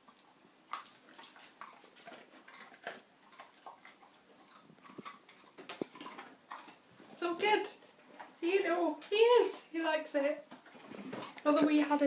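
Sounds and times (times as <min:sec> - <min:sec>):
dog crunching a biscuit: 0:00.1 - 0:08.4.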